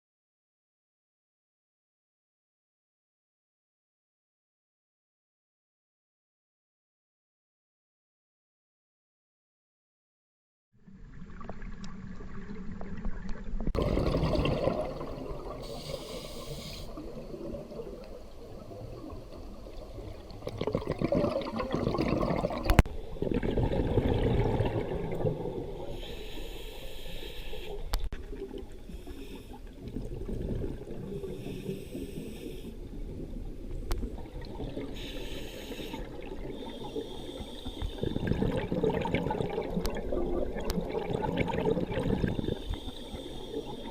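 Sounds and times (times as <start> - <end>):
water sloshing and bubbling: 10.8 - 43.9
hiss: 15.6 - 17.2, 25.8 - 27.8, 28.9 - 29.6, 31.1 - 32.8, 34.9 - 38.2, 42.3 - 43.9.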